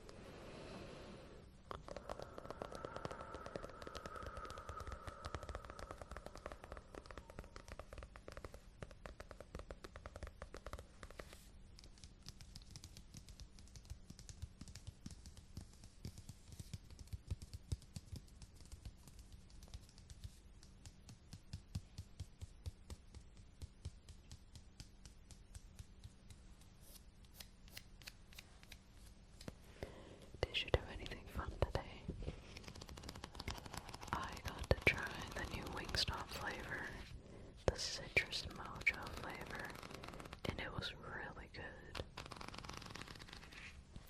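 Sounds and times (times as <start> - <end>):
object crackling and clicking: 1.7 - 20.2, 31.1 - 41.0, 41.8 - 44.0.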